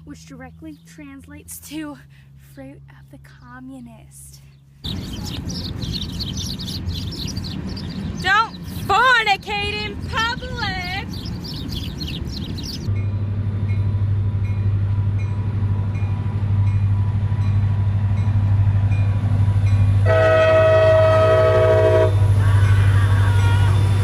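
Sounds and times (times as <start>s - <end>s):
train rumbling past: 4.8s - 24.0s
train horn: 20.0s - 24.0s.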